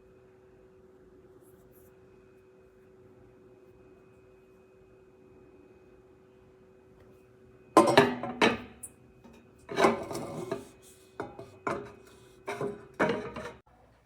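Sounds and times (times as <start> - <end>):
metal kettle clanking: 7.8 - 10.6, 11.2 - 13.6.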